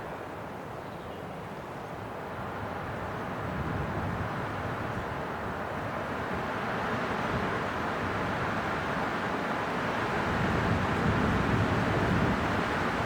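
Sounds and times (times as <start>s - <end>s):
strong wind blowing: 9.9s - 13.0s.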